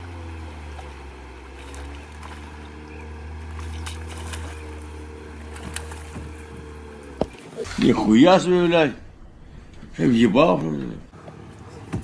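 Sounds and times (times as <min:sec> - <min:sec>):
boat motor droning: 0:00.0 - 0:12.0.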